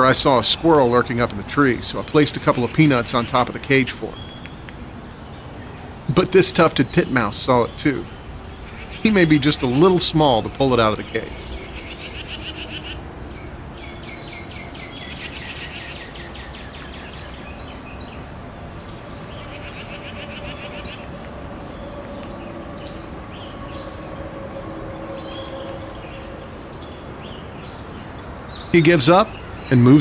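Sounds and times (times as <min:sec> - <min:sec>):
songbird trilling: 0:00.0 - 0:18.2, 0:26.8 - 0:30.0
high insect drone: 0:00.0 - 0:30.0
low background noise: 0:00.0 - 0:30.0.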